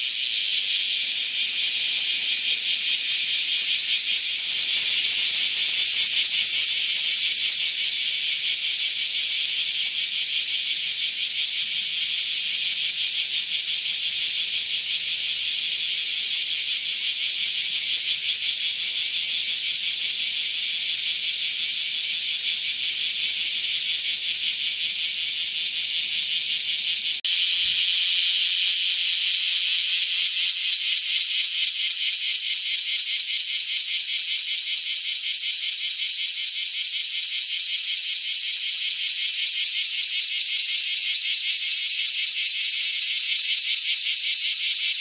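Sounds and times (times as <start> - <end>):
cicada buzzing: 0.0 - 45.0.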